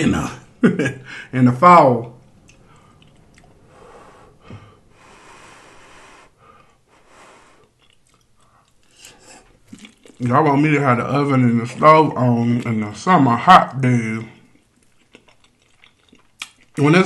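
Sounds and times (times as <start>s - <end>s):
breathing: 1.0s - 1.4s, 2.6s - 3.1s, 3.7s - 7.8s, 8.4s - 9.6s
man chewing: 2.2s - 10.3s, 14.4s - 16.9s
small mouth clicks: 7.6s - 10.2s.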